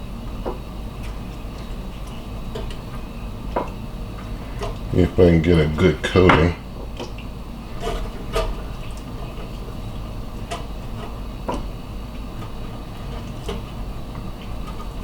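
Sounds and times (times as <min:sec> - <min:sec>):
steady low hum: 0:04.2 - 0:06.8.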